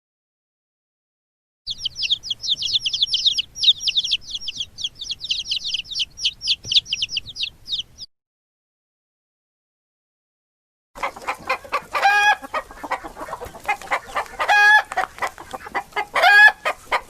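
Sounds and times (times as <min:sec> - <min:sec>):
birds chirping rapidly: 0:01.7 - 0:08.1, 0:11.0 - 0:17.0.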